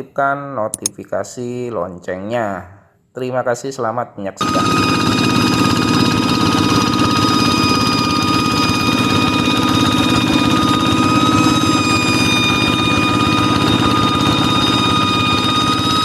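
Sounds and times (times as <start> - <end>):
diesel engine running: 4.4 - 16.0
high steady whistling tone: 4.4 - 16.0.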